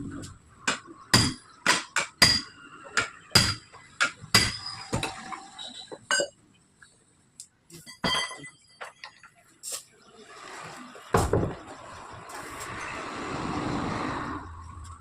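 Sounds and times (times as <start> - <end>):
rushing noise: 12.1 - 15.0.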